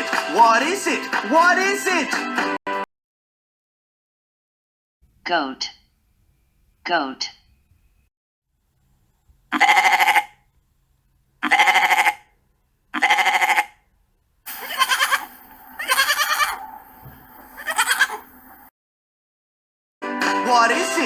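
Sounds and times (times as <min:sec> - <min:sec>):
goat bleating: 0:09.5 - 0:10.4, 0:11.4 - 0:12.3, 0:12.9 - 0:13.8, 0:14.5 - 0:16.7, 0:17.6 - 0:18.3.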